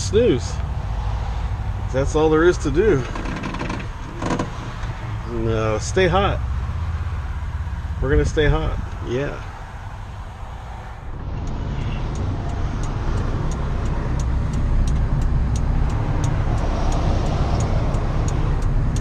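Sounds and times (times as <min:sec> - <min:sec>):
truck engine rumbling: 0:00.0 - 0:19.0
light regular ticks: 0:11.4 - 0:19.0.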